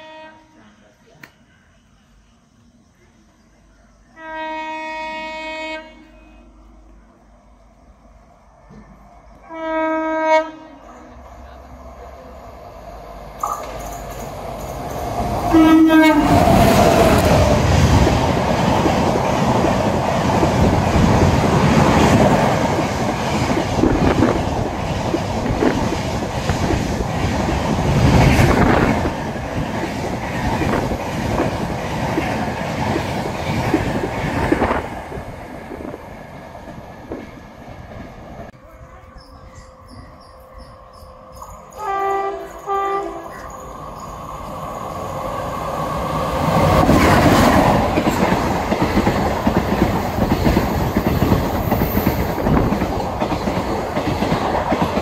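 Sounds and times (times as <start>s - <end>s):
train horn blasts: 0.0s - 0.8s, 4.2s - 6.5s, 9.4s - 11.2s, 15.5s - 16.5s, 41.8s - 43.5s
train wheels rushing on rails: 6.7s - 55.0s
clickety-clack of train coaches: 13.4s - 38.6s, 39.2s - 55.0s.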